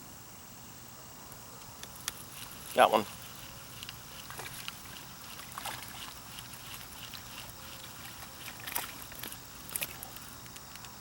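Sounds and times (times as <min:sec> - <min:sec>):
light water splashing: 0:01.8 - 0:10.7
short sharp splashes or clicks: 0:01.9 - 0:10.3.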